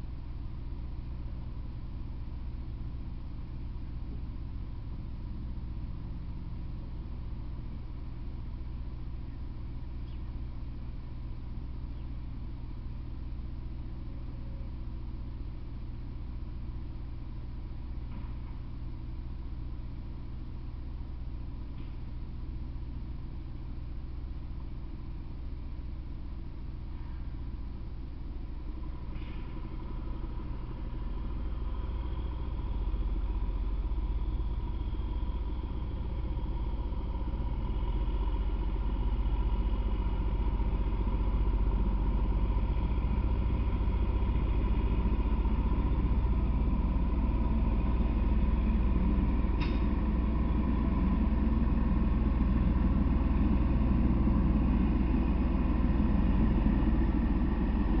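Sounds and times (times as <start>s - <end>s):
faint steady whine: 0.0s - 58.0s
train rumbling on tracks: 28.4s - 58.0s.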